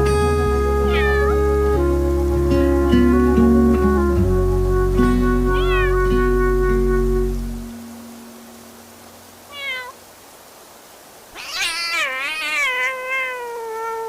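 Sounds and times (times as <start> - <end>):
cat meowing: 0.8 - 1.4, 5.5 - 6.0, 9.5 - 10.0, 11.3 - 14.0.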